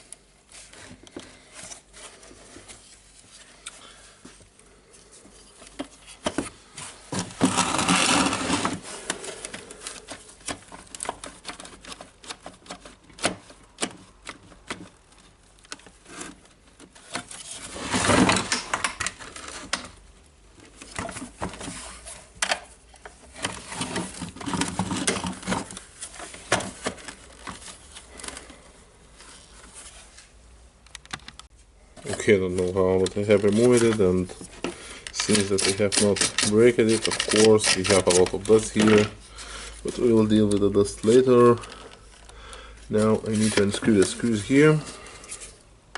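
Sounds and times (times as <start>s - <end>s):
scraping and rattling: 7.1s - 13.5s
hand tools clicking on plastic: 7.5s - 17.3s, 32.1s - 39.2s.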